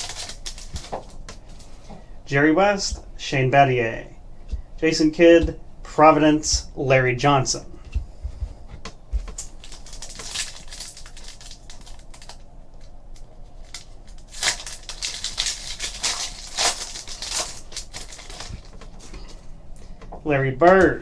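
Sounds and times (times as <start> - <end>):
wrapper crinkling and tearing: 0.0 - 1.8, 9.3 - 18.9.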